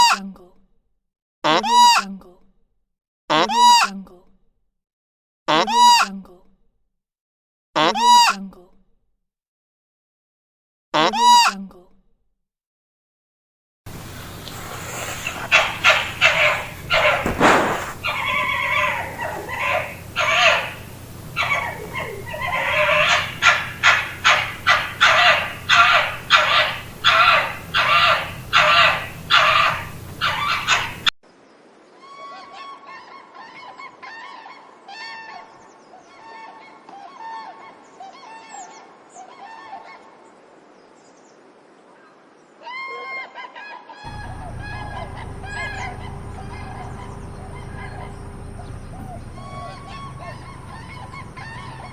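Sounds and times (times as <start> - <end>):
birds giving harsh calls: 13.9 - 31.1, 44.1 - 51.9
flock honking: 13.9 - 31.1, 44.1 - 51.9.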